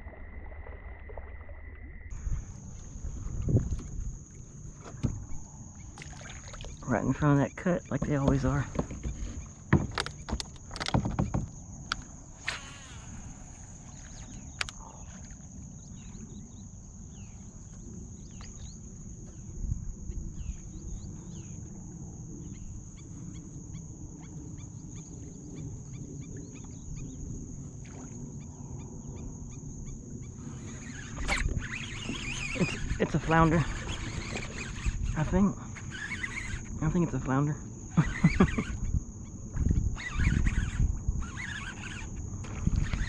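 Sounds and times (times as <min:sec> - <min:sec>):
birds chirping: 0:02.1 - 0:27.6, 0:28.4 - 0:42.2
steady high buzz: 0:11.9 - 0:25.9.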